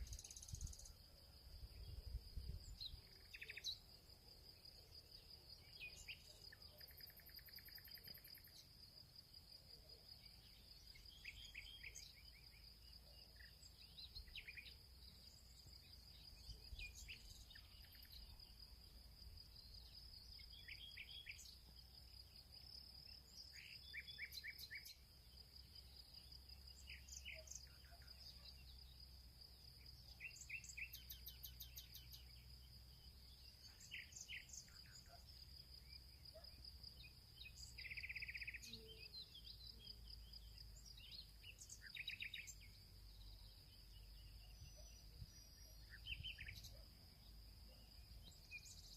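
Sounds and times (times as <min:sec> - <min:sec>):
short bird chirps: 0:44.5 - 0:46.8.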